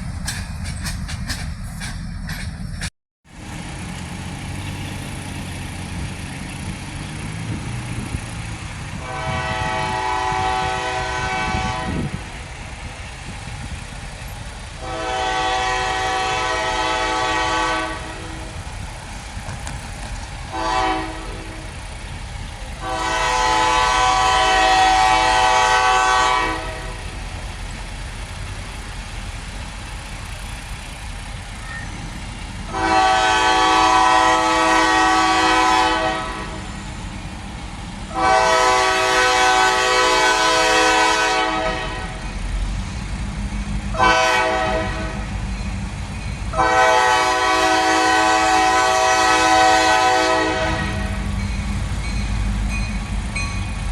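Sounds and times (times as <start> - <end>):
train rumble: 0.0 - 53.9
locomotive air horn: 8.8 - 12.4, 14.8 - 18.7, 20.5 - 21.8, 22.8 - 27.2, 32.6 - 36.8, 38.1 - 42.3, 43.9 - 45.4, 46.5 - 51.4.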